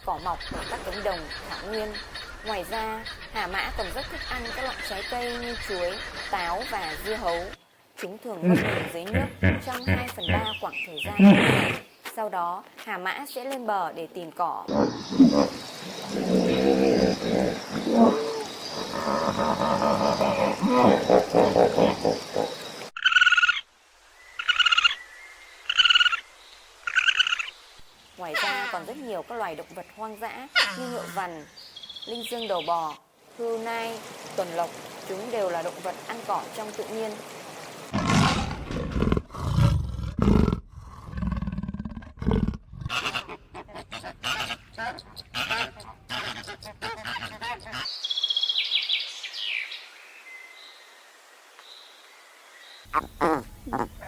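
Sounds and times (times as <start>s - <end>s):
hippopotamus calling: 8.3s - 11.9s, 14.7s - 23.6s, 42.3s - 47.9s, 52.9s - 54.0s
large animal roaring: 14.7s - 22.6s, 37.9s - 42.9s
high-pitched animal trilling call: 23.0s - 23.6s.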